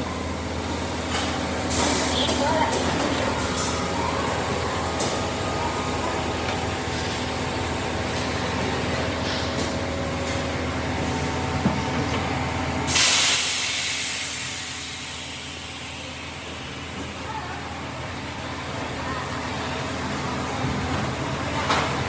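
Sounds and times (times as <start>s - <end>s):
factory machinery humming: 0.0s - 22.0s
loud venting hiss: 12.8s - 17.1s.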